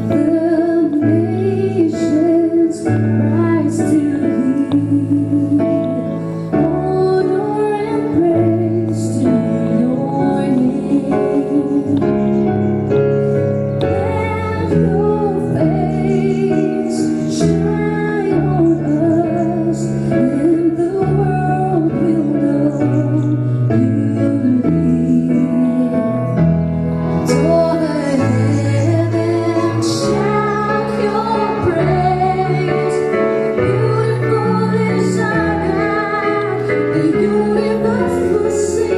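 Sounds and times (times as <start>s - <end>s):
held keyboard chords: 0.0s - 38.9s
woman singing with vibrato: 6.6s - 12.0s, 13.9s - 26.2s, 27.3s - 38.9s.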